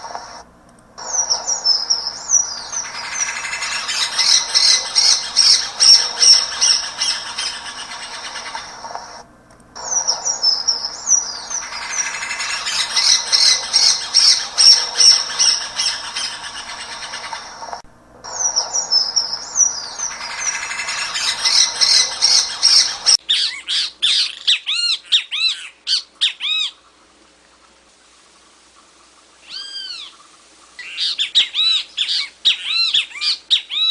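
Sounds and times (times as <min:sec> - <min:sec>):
bird whistling notes: 0:01.0 - 0:09.2, 0:09.8 - 0:23.2
songbird chirps and trills: 0:01.0 - 0:27.8.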